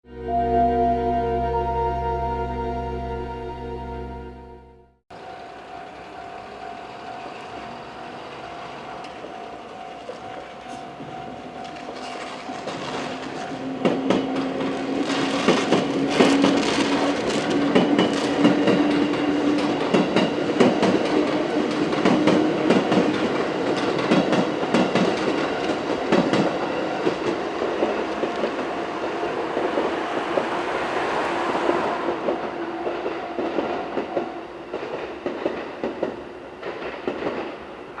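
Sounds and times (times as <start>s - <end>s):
steady tone: 0.0s - 5.0s.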